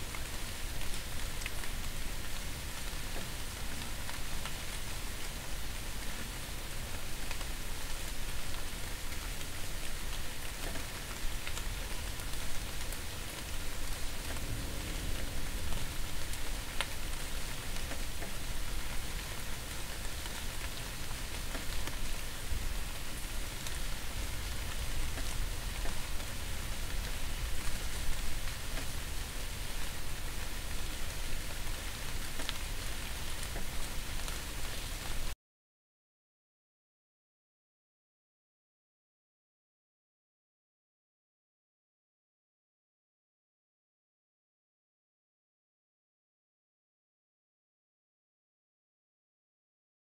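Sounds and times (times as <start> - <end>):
steady rain falling: 0.0 - 35.4
ticks of raindrops: 0.0 - 35.4
low rumble: 14.4 - 16.8.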